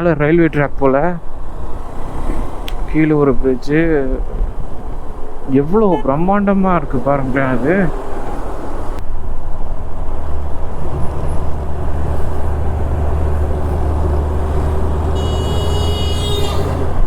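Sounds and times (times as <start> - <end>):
wind and road noise: 0.0 - 17.0
vehicle horn: 5.6 - 6.5, 15.1 - 16.9.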